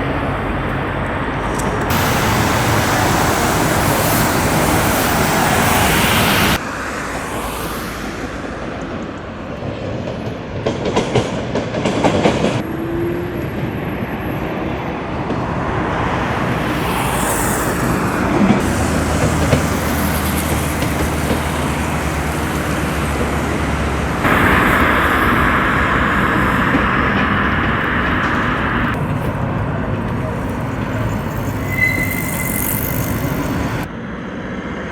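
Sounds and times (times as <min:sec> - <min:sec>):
train running: 0:00.0 - 0:34.9
wheels clacking over rail joints: 0:17.8 - 0:33.9.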